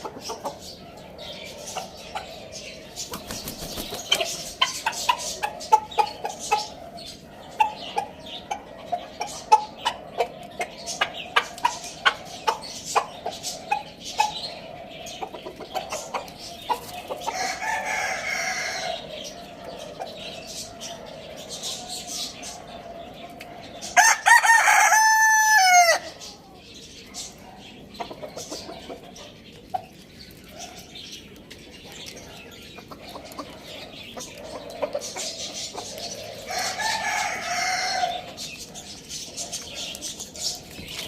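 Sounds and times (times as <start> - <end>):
chickens clucking: 0.0 - 41.0
rooster crowing: 24.0 - 26.1, 36.5 - 38.3.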